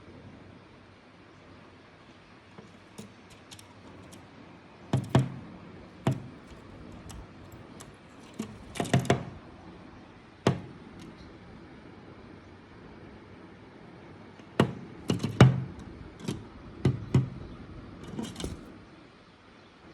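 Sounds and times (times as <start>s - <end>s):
sharp knocks and taps: 4.9s - 5.4s, 6.0s - 9.4s, 10.4s - 11.1s, 14.5s - 18.7s.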